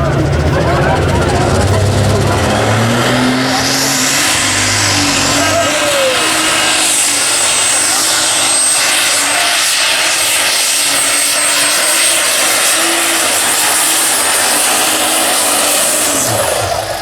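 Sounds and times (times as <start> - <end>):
tractor engine roaring at full throttle: 0.0 - 17.0.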